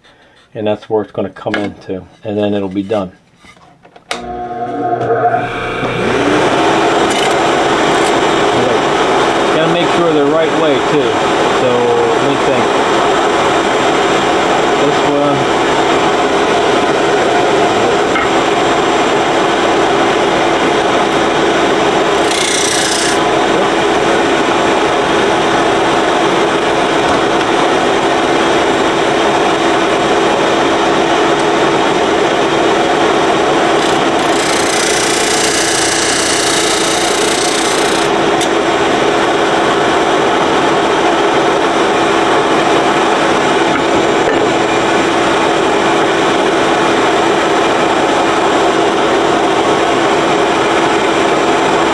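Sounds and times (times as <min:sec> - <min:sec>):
disc sander humming: 0:04.0 - 0:48.5
wood board grinding on sander: 0:04.2 - 0:12.0, 0:17.2 - 0:28.4, 0:32.6 - 0:39.1.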